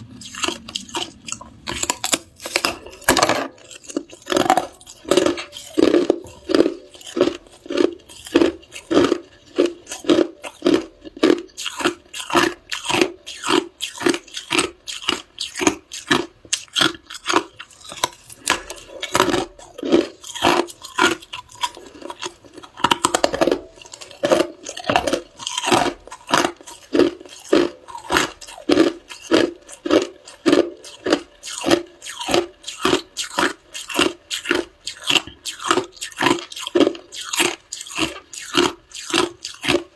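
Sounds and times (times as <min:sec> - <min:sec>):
person chewing ice: 0:00.0 - 0:39.9.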